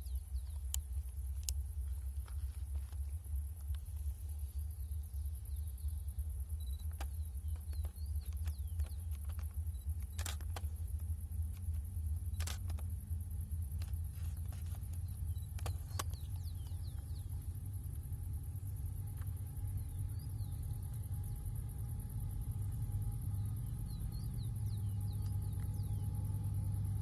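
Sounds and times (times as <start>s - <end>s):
sharp clicks: 0.3s - 4.0s, 6.5s - 17.6s.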